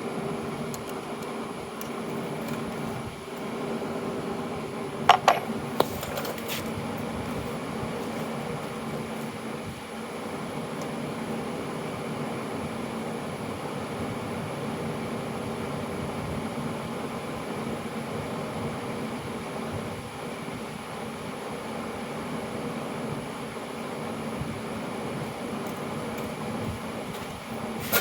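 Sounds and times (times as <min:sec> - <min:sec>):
steady machine noise: 0:00.0 - 0:15.9.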